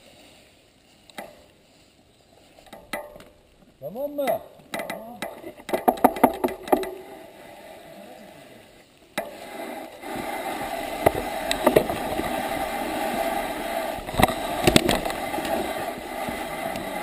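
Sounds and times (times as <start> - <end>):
bicycle tyre and wind rush: 0.0 - 3.8, 6.4 - 17.0
bike clicks and rattles: 2.5 - 7.3, 9.1 - 17.0.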